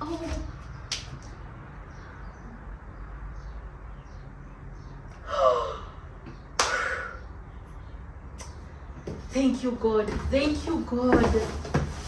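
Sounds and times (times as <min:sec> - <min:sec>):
woman gasping: 0:05.2 - 0:06.0.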